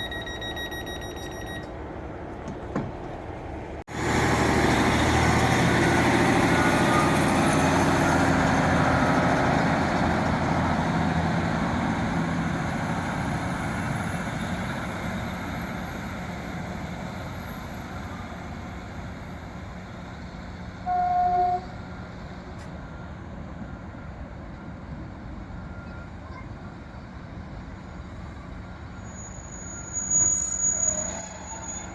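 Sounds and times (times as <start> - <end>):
diesel train running: 0.0 - 31.9
train horn toot: 20.8 - 21.8.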